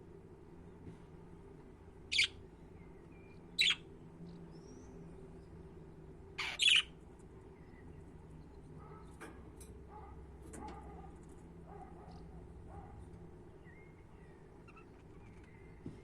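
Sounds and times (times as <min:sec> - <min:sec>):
budgerigar calls: 0:02.1 - 0:02.4, 0:03.6 - 0:03.8, 0:06.4 - 0:06.9.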